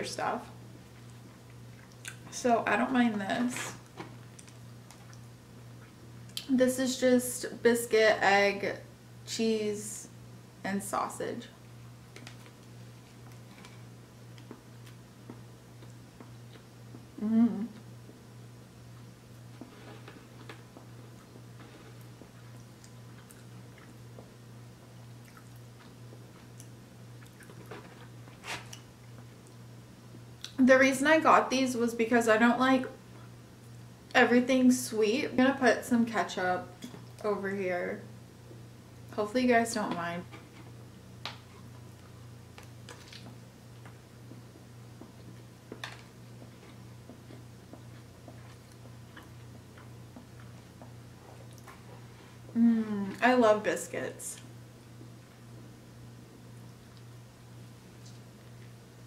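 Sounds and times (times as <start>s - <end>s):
steady low hum: 0.0s - 59.0s
wet chewing mouth clicks: 25.1s - 27.6s.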